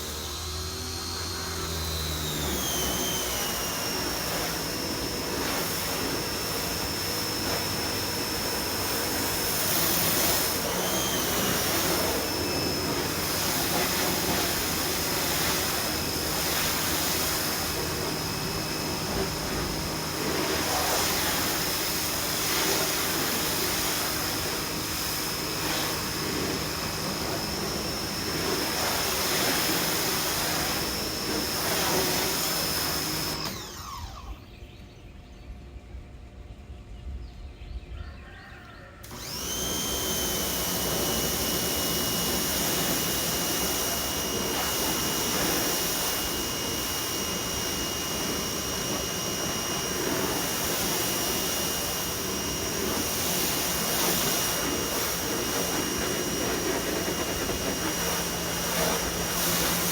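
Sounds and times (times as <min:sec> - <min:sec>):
pressure washer motor whine: 0:00.0 - 0:35.0, 0:39.0 - 0:59.9
water jet hissing: 0:39.2 - 0:59.9.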